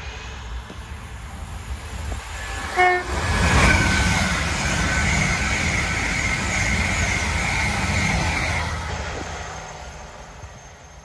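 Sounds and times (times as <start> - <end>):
diesel train passing at speed: 0.0 - 11.0
train horn: 2.7 - 3.2.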